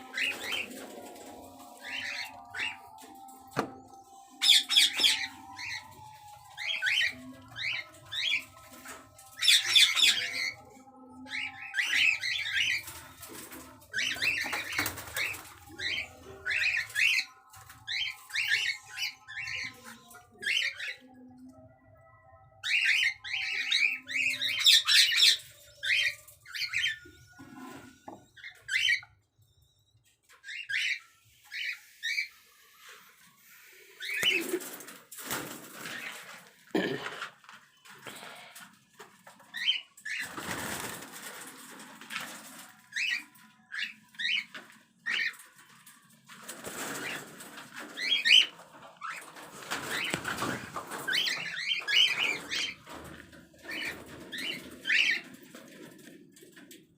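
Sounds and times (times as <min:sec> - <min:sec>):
rustling fluttering wings: 0:33.6 - 0:36.7, 0:39.0 - 0:44.4, 0:45.1 - 0:56.7
cockatiels chirping: 0:46.8 - 0:53.0, 0:53.7 - 0:55.3.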